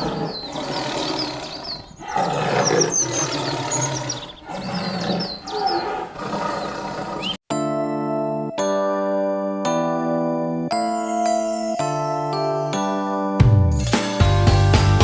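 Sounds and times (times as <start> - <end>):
big cat roaring: 0.0 - 7.4
birds chirping: 0.0 - 7.4
bell-like musical note: 7.6 - 14.2.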